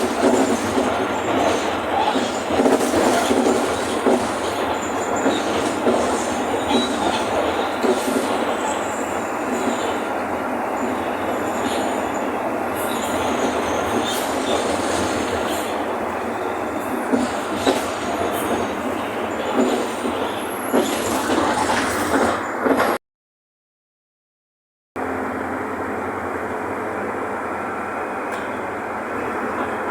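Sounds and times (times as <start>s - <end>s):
bus engine and road rumble: 25.0s - 29.9s.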